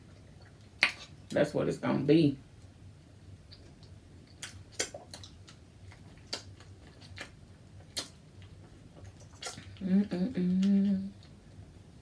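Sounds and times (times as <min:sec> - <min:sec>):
mouth chewing clicks and smacks: 0:00.1 - 0:01.4, 0:03.4 - 0:09.8.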